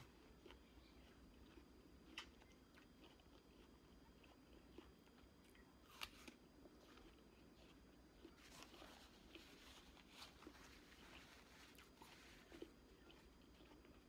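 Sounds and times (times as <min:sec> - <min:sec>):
faint chewing of fruit: 0:00.0 - 0:14.0.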